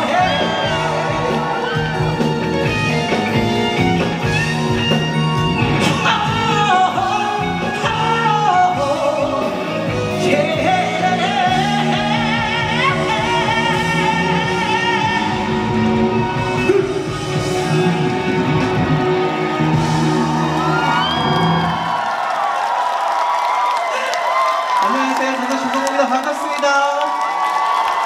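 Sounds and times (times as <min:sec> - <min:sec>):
live band playing pop ballad: 0:00.0 - 0:21.9.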